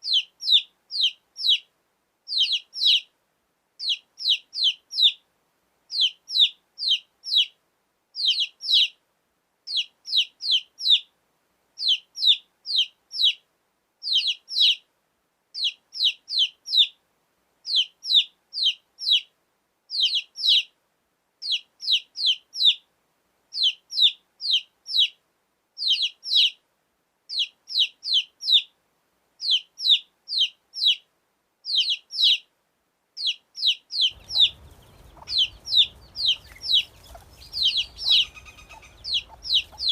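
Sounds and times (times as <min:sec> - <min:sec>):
baby chick peeping: 0:00.0 - 0:01.7, 0:02.3 - 0:03.1, 0:03.8 - 0:05.2, 0:05.9 - 0:07.6, 0:08.2 - 0:09.0, 0:09.7 - 0:11.1, 0:11.8 - 0:13.4, 0:14.0 - 0:14.8, 0:15.6 - 0:17.0, 0:17.6 - 0:19.3, 0:19.9 - 0:20.7, 0:21.4 - 0:22.8, 0:23.5 - 0:25.2, 0:25.8 - 0:26.6, 0:27.3 - 0:28.7, 0:29.4 - 0:32.5, 0:33.2 - 0:39.9.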